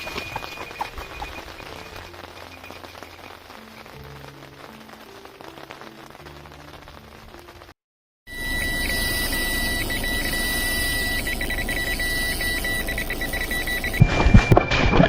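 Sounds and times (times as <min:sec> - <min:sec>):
electronic bite alarm beeping: 0:08.3 - 0:15.0.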